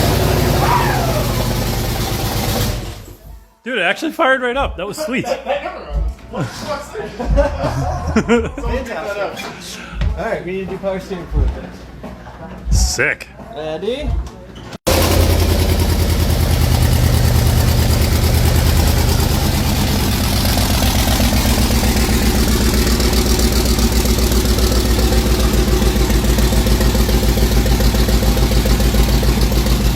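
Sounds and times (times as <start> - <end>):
small truck engine idling: 0.0 - 3.2, 14.9 - 29.9.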